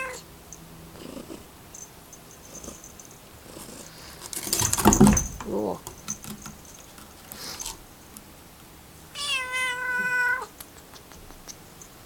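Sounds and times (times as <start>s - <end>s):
cat meowing: 0.0s - 0.2s, 9.1s - 10.5s.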